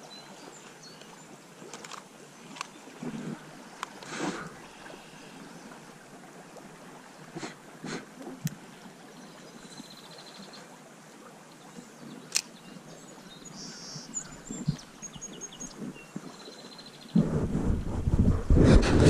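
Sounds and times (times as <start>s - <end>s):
songbirds chirping and trilling: 11.6s - 17.2s
rough rumbling microphone noise: 17.1s - 19.0s.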